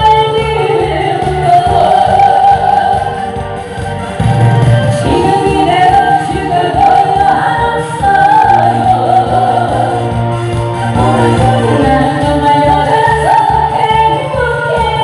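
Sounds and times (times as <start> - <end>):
band accompaniment: 0.0 - 15.0
steady bass line: 0.0 - 15.0
person singing: 5.0 - 10.1.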